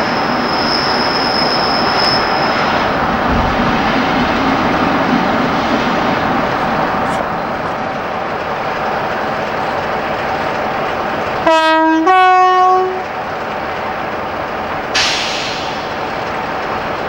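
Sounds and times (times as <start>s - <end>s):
train running: 0.0s - 17.0s
two-tone locomotive horn: 11.4s - 13.2s
brief hiss: 15.0s - 16.0s.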